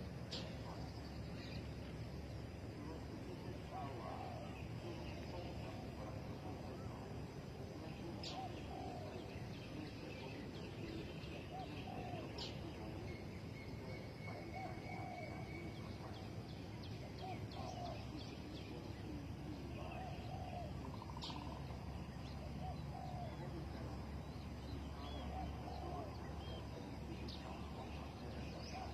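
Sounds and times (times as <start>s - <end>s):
small birds chirping: 0.0s - 28.9s
doves cooing: 3.5s - 7.0s, 8.2s - 9.4s, 11.5s - 12.7s, 17.0s - 18.3s, 19.6s - 28.9s.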